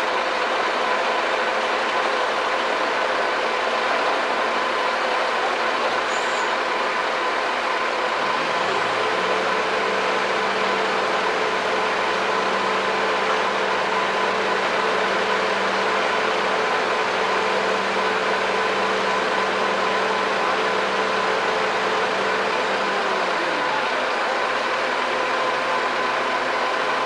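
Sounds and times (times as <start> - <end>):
heavy machinery engine revving: 8.1 - 24.7.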